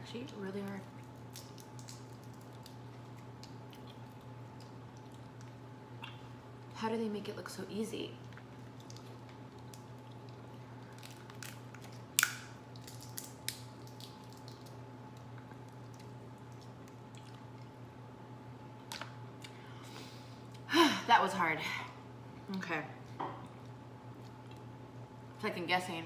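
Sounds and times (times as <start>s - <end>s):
steady low hum: 0.0s - 26.0s
seafood shells cracking: 0.3s - 6.2s, 8.2s - 17.7s.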